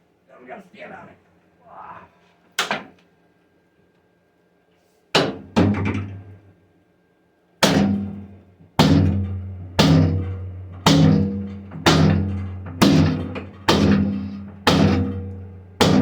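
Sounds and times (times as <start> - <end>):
sledgehammer striking steel: 7.6 - 16.0.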